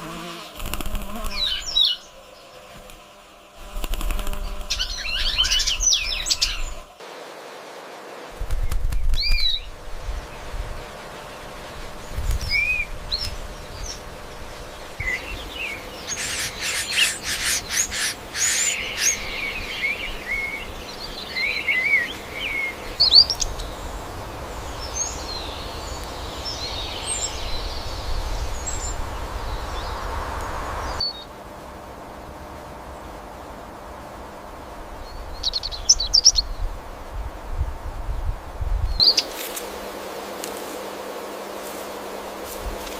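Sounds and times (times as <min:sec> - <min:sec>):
forest ambience: 0:00.0 - 0:42.9
wild birds chirping: 0:00.1 - 0:07.0, 0:08.5 - 0:31.4, 0:34.5 - 0:37.4, 0:38.8 - 0:39.4.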